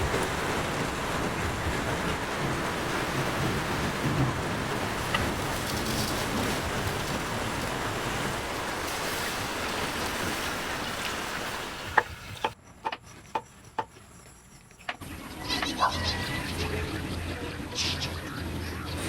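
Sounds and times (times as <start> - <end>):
heavy rain: 0.0 - 12.1.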